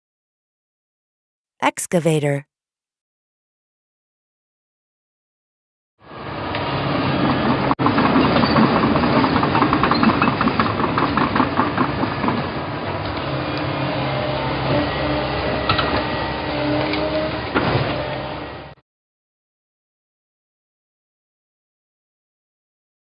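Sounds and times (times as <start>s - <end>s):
excavator diesel engine droning: 12.6s - 18.7s.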